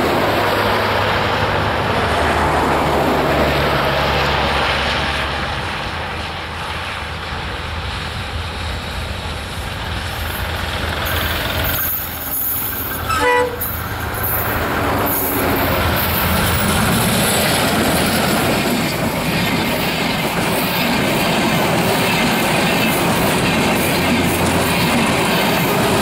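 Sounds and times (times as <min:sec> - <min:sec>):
diesel locomotive engine passing: 0:00.0 - 0:26.0
wheels rumbling on rails: 0:00.0 - 0:26.0
train horn blast: 0:13.0 - 0:13.8.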